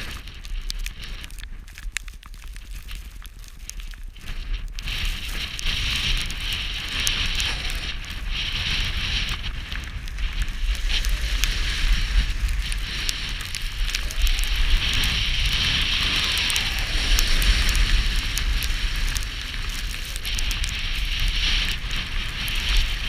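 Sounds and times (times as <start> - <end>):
skis scraping over snow: 0.0 - 23.0
wind buffeting microphone: 0.0 - 23.0.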